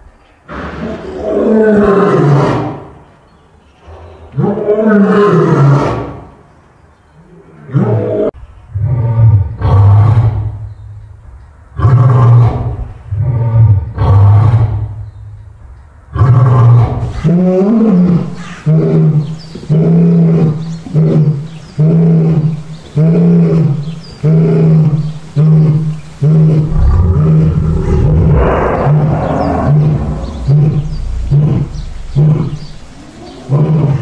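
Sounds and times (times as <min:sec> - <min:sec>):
lion roaring: 0:26.2 - 0:34.0.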